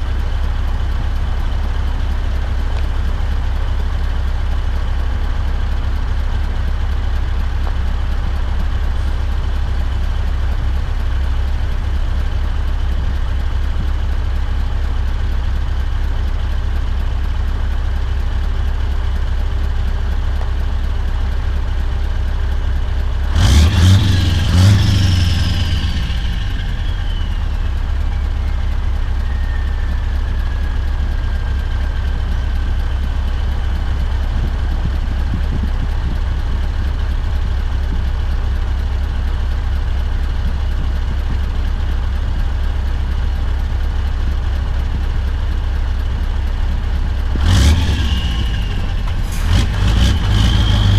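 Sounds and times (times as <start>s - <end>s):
truck engine droning: 0.0s - 50.9s
falling whistle: 26.8s - 30.4s.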